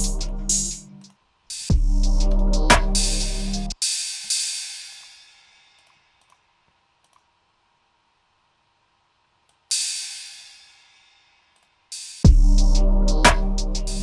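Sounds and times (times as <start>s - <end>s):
crash cymbal: 1.5s - 5.8s, 9.7s - 14.0s
faint clicks: 5.8s - 7.3s.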